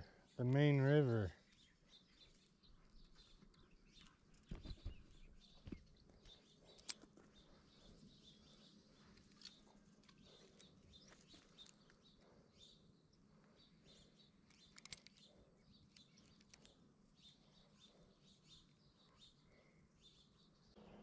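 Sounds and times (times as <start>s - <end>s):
faint bird chirps: 0.0s - 21.0s.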